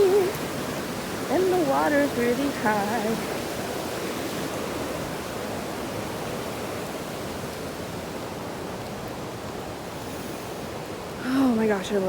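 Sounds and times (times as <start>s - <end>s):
fast river rushing: 0.0s - 12.0s.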